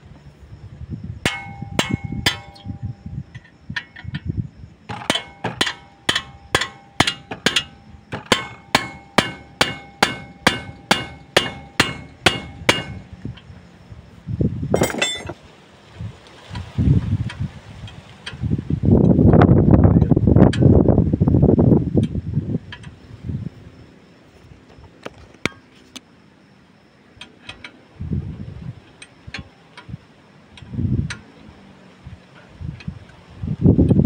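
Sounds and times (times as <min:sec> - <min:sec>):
hammer striking metal: 0:01.3 - 0:03.0, 0:04.9 - 0:13.3, 0:14.8 - 0:15.4.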